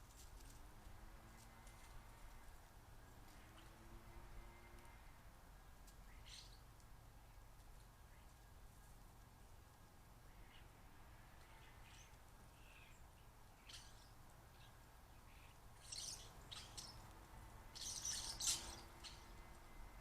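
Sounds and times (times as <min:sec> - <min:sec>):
small birds chirping: 0:05.9 - 0:09.3, 0:11.3 - 0:20.0.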